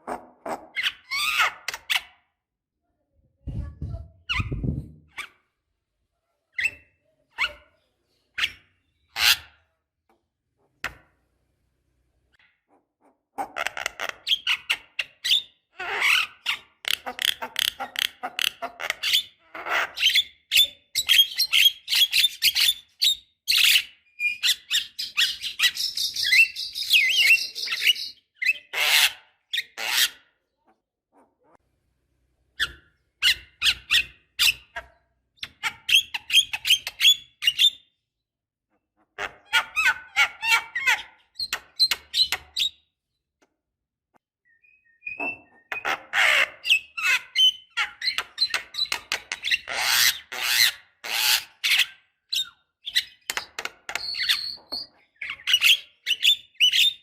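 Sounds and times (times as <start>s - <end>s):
bird chattering and squawking: 13.4s - 30.3s, 45.0s - 57.0s.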